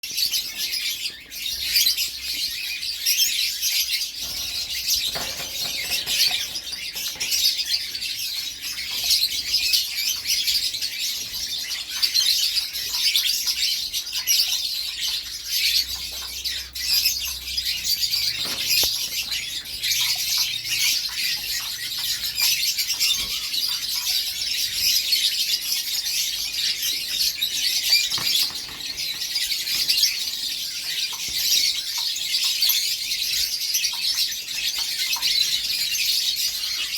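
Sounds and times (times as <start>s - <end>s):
canary singing: 0.0s - 36.9s.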